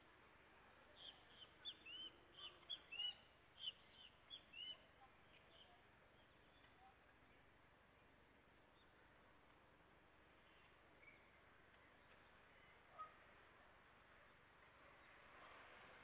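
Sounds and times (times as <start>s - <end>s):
faint outdoor hush: 0.0s - 16.0s
small birds high chirps: 0.9s - 9.1s.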